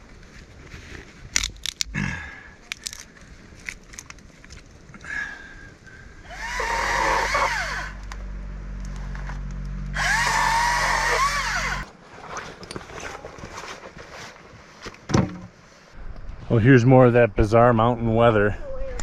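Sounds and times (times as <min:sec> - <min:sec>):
small motor humming: 0:06.2 - 0:08.8, 0:09.5 - 0:11.9.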